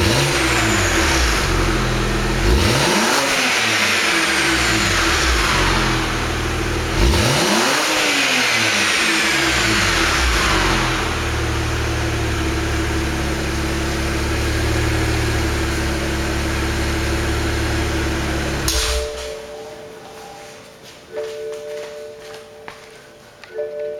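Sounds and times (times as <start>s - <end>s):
car engine revving and idling: 0.0s - 19.2s.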